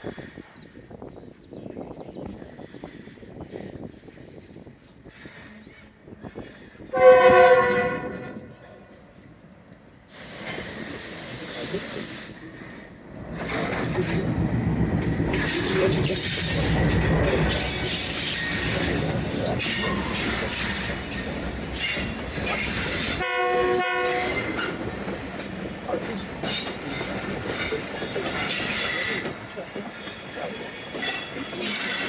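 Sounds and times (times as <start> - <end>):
train wheels rumbling and squealing: 0.0 - 32.0
train horn blast: 6.9 - 8.8, 23.2 - 24.8.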